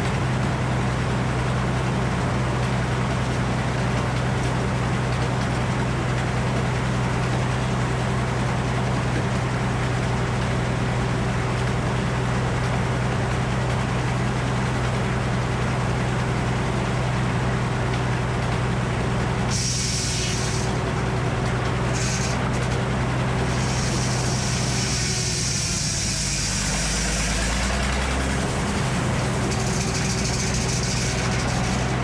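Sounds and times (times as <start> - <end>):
sawmill engine humming: 0.0 - 32.0
high hiss: 19.5 - 20.8.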